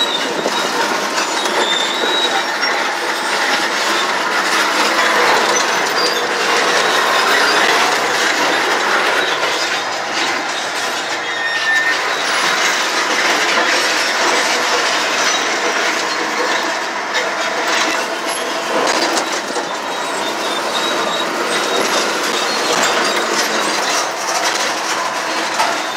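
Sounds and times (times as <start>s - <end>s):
crawler tracks clanking and squealing: 0.0s - 25.9s
diesel engine running: 0.0s - 25.9s.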